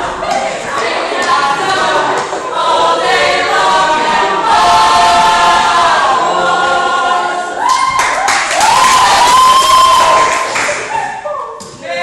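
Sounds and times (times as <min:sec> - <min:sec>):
group of voices singing: 0:00.0 - 0:07.9, 0:10.9 - 0:12.0.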